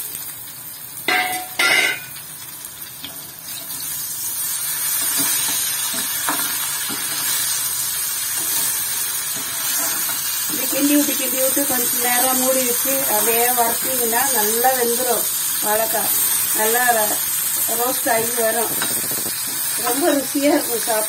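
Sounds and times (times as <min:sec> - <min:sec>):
banana slices sizzling in oil: 0:00.0 - 0:21.0
metal spatula scraping pan: 0:08.4 - 0:10.3.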